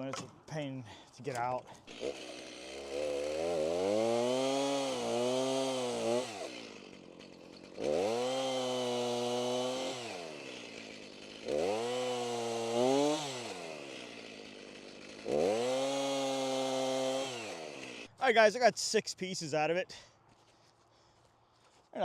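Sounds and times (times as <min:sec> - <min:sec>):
chainsaw cutting a branch: 0:01.9 - 0:18.1.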